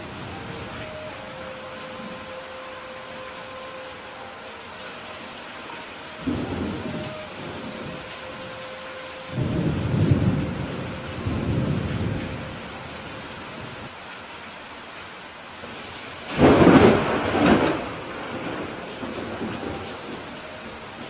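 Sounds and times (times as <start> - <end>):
steady rain: 0.0 - 21.0
thunder rumbling: 6.2 - 8.6, 9.2 - 13.9, 16.3 - 21.0.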